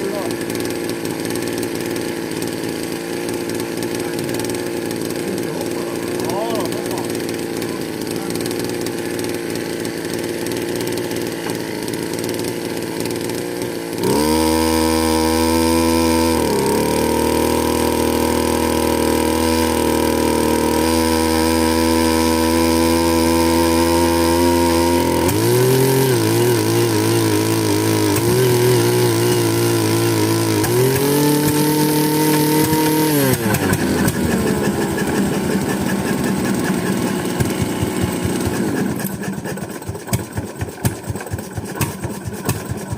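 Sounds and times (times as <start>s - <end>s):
engine running: 0.0s - 42.9s.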